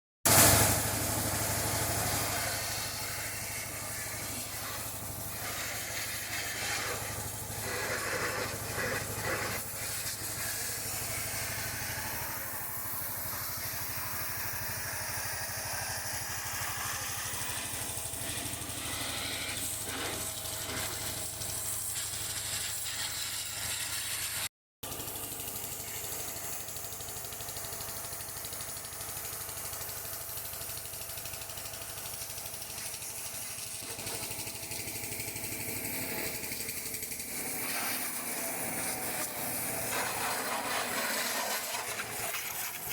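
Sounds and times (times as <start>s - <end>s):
hissing water spray: 0.3s - 42.9s.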